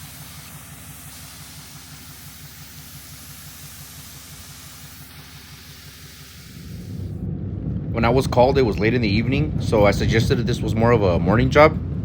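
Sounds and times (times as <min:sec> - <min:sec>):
constant hiss: 0:00.0 - 0:07.2
diesel engine running: 0:00.0 - 0:12.0.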